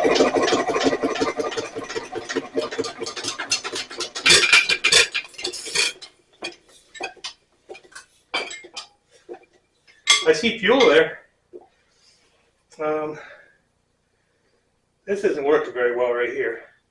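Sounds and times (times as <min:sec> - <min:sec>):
engine rapid metallic clicking: 0:00.0 - 0:06.1.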